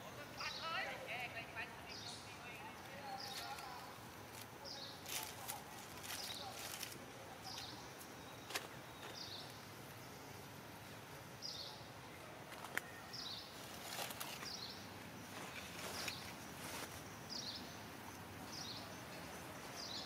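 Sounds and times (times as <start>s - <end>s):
bird chirping: 0.0s - 4.0s, 4.6s - 20.0s
soft rustles: 13.5s - 17.2s.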